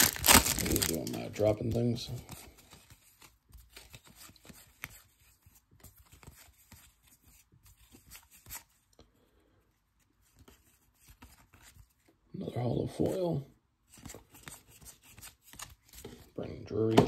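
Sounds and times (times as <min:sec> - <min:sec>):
trading cards ticking and rustling: 0:00.0 - 0:05.1.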